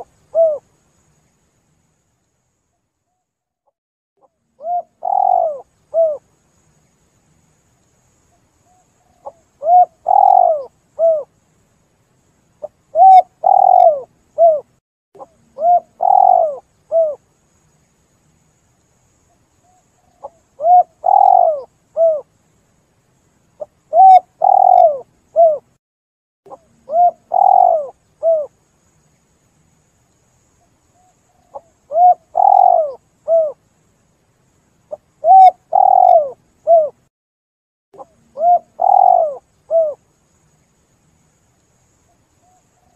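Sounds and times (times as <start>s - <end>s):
dove cooing: 0.0s - 0.6s, 4.6s - 6.2s, 8.7s - 11.3s, 12.9s - 17.2s, 20.0s - 22.3s, 23.6s - 25.7s, 26.5s - 28.5s, 31.0s - 33.6s, 34.9s - 37.0s, 38.0s - 40.0s.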